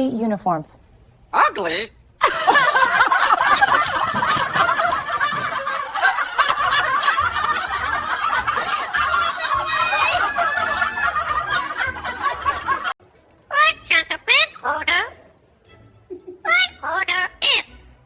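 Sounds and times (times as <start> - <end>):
people laughing together: 2.2 - 13.0.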